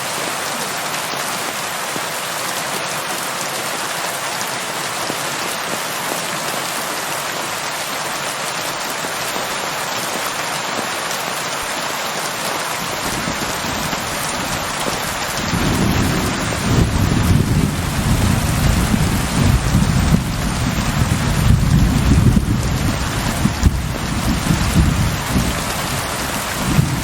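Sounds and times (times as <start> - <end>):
heavy rain: 0.0 - 27.0
thunder rumble: 15.4 - 27.0.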